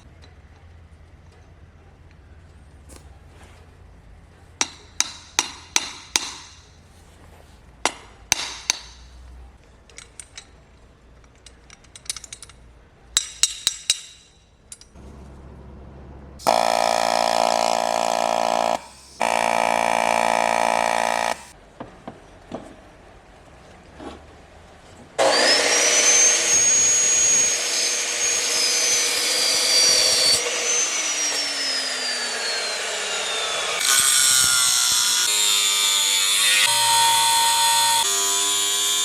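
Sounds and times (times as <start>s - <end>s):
metal parts clinking: 9.8s - 15.0s
power tool motor running: 16.4s - 21.6s, 25.2s - 39.0s.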